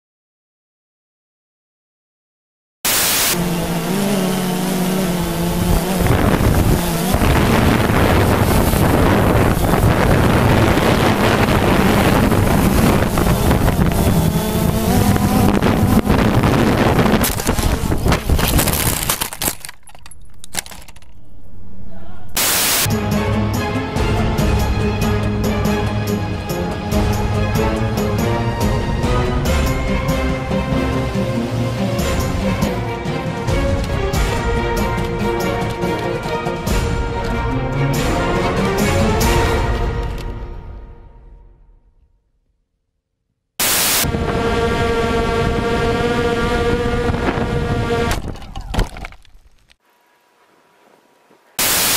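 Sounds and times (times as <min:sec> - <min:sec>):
burst of loud hiss: 0:02.9 - 0:03.7, 0:22.4 - 0:22.9, 0:43.6 - 0:44.1, 0:51.6 - 0:51.9
rushing noise: 0:02.9 - 0:23.0, 0:43.6 - 0:47.8
drone propellers whining: 0:03.1 - 0:39.2, 0:43.6 - 0:48.3
crash with cracking and breaking: 0:17.2 - 0:21.0, 0:48.1 - 0:49.8
background music with steady beat: 0:22.9 - 0:39.9.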